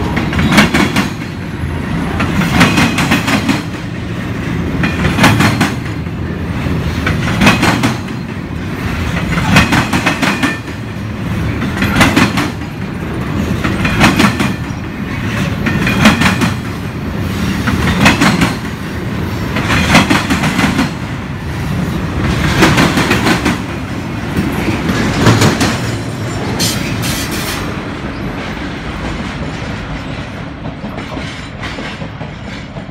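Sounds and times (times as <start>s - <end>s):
train wheels clattering over rail joints: 0.0s - 18.8s, 19.5s - 21.0s, 22.2s - 32.9s.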